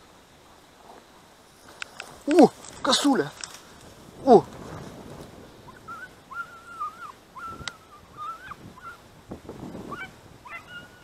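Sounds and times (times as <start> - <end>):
distant birds honking: 5.4 - 11.0.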